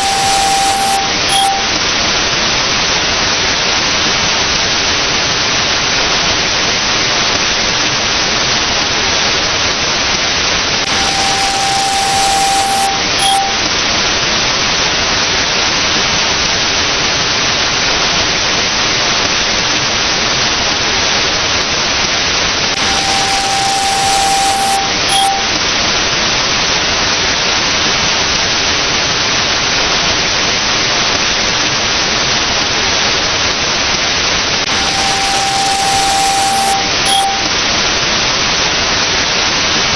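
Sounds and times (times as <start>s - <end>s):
electronic beep: 0.0s - 1.8s, 10.9s - 13.7s, 22.8s - 25.6s, 34.7s - 37.6s
short electronic blip: 0.0s - 1.8s, 10.9s - 13.7s, 22.8s - 25.6s, 34.7s - 37.5s
static-like hiss: 0.0s - 1.8s, 10.9s - 13.7s, 22.8s - 25.6s, 34.7s - 37.5s.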